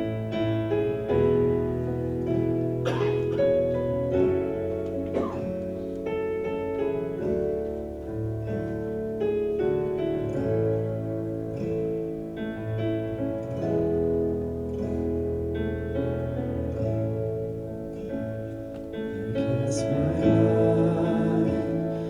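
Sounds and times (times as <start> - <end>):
guitar chords: 0.0 - 22.0
piano chords: 0.0 - 22.0
worship band playing: 19.1 - 22.0.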